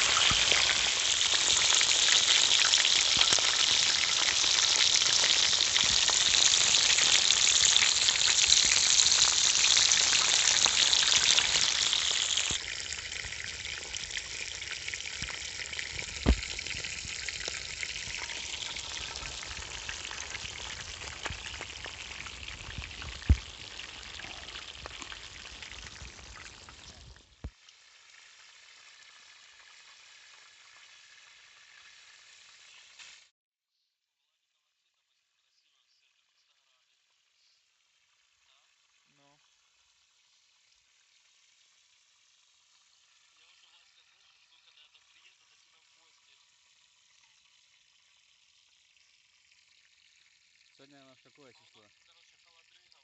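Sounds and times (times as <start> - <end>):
food sizzling in a pan: 0.0 - 33.3, 37.3 - 52.6
sharp pops: 15.2 - 27.2.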